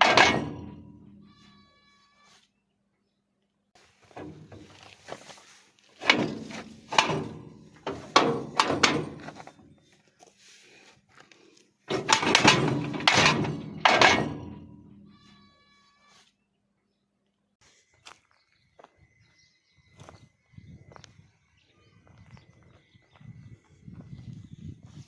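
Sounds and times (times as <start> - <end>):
heavy ringing knocks: 6.0 - 9.6, 11.9 - 14.9.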